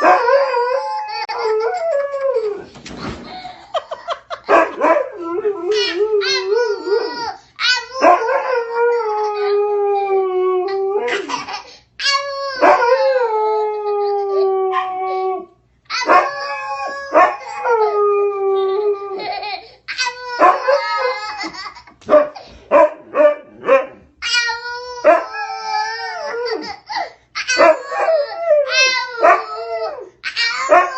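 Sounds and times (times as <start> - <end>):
baby howling: 0.0 - 2.6, 5.2 - 21.7, 24.2 - 30.9
dog howling: 0.0 - 2.6, 12.6 - 19.3, 20.4 - 21.3, 23.1 - 26.7, 27.5 - 30.9.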